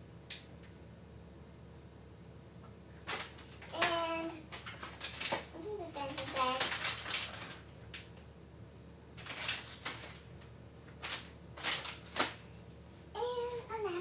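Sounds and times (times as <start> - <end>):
kitchen clatters and rustles: 3.0 - 8.2, 9.2 - 12.5.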